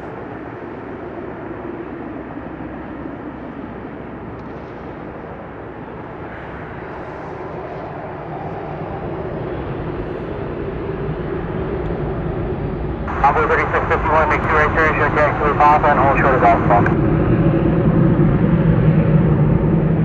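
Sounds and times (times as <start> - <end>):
jet engines rumbling: 13.0 - 17.0.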